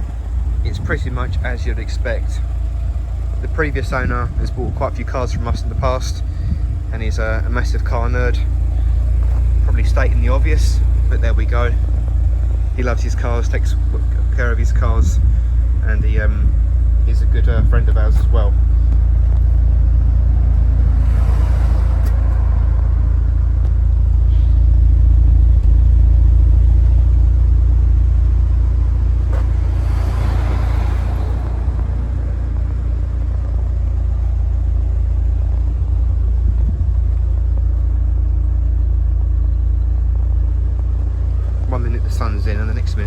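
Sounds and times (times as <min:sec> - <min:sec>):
car engine idling: 0:00.0 - 0:43.0.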